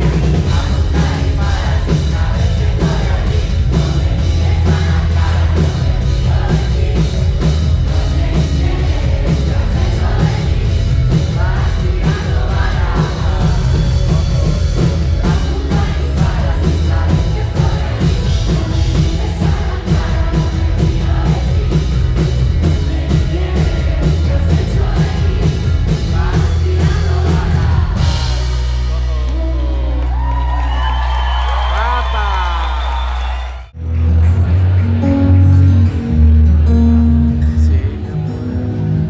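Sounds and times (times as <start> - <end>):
pop-rock band playing loud: 0.0 - 29.7
voices singing or shouting: 0.0 - 29.7
driving drum kit: 0.0 - 32.4.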